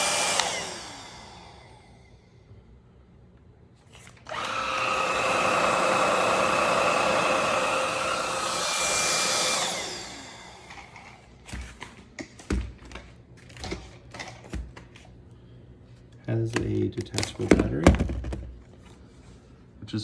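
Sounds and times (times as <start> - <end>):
vacuum motor whining: 0.0 - 2.2, 4.0 - 11.2.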